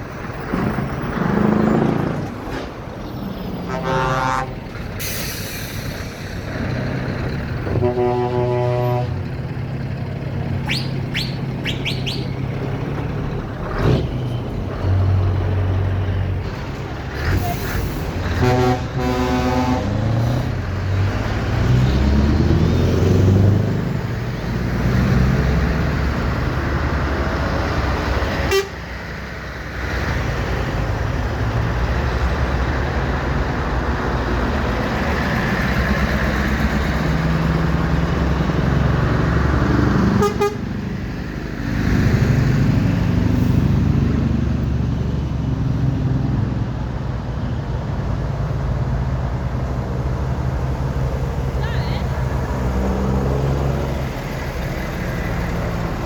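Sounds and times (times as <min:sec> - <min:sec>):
lorry diesel engines passing: 0:00.0 - 0:56.0
horn toots: 0:03.6 - 0:04.6, 0:07.6 - 0:09.2, 0:18.2 - 0:20.4, 0:28.5 - 0:28.8, 0:40.2 - 0:40.7.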